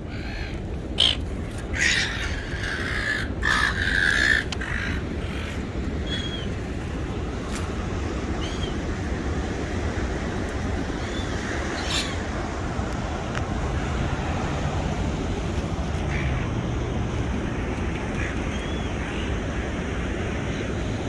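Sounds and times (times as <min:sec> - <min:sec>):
gull harsh call: 0:00.1 - 0:06.4.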